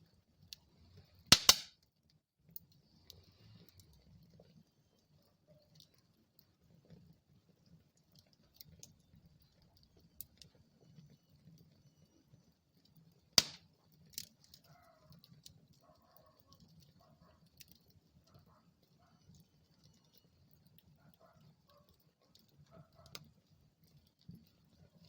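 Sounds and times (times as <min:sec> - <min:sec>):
wood fire crackling: 0:00.0 - 0:25.0
sharp pops from fire: 0:01.3 - 0:01.8, 0:13.4 - 0:15.6.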